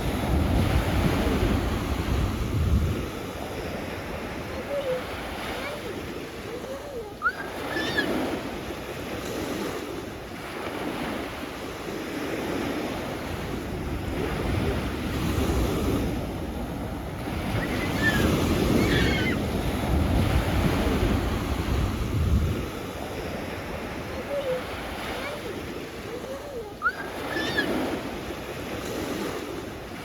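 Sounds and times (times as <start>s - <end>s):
wind rumbling on microphone: 0.0s - 5.4s, 12.6s - 25.0s
sea waves washing onto shore: 0.0s - 30.0s.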